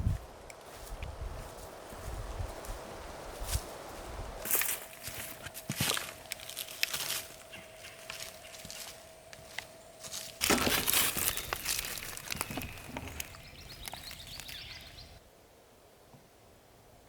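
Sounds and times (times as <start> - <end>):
crinkling rustling: 10.4 - 15.0.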